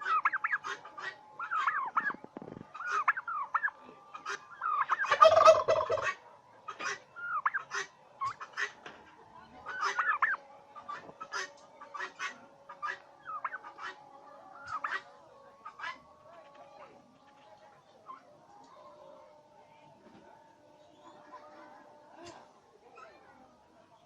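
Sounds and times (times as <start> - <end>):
turkey gobbling loudly: 0.0 - 8.8, 9.6 - 16.1
turkeys yelping and peeping: 0.0 - 19.0.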